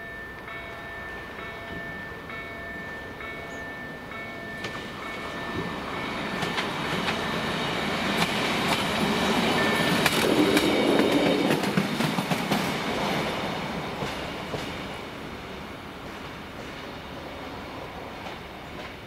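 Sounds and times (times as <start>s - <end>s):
train wheels clicking over rail joints: 4.4s - 15.0s.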